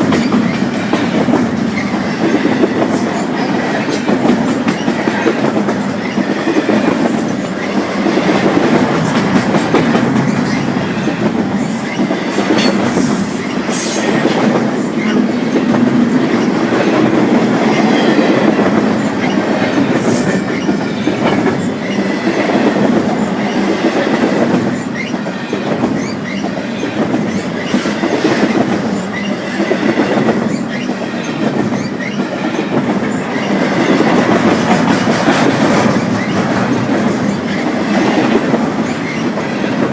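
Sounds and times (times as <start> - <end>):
train wheels clacking on rail joints: 0.0 - 39.9.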